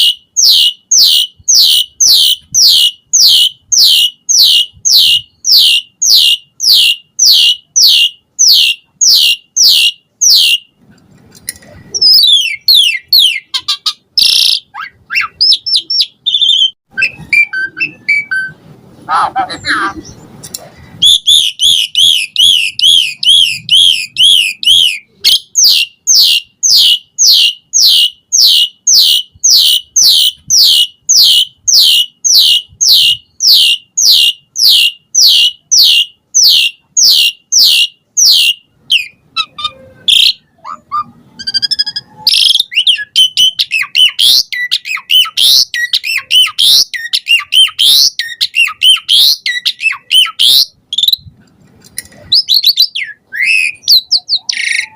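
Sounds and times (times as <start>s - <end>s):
starling singing whistles: 0.0s - 10.7s, 12.0s - 18.6s, 21.0s - 51.2s, 52.3s - 54.9s.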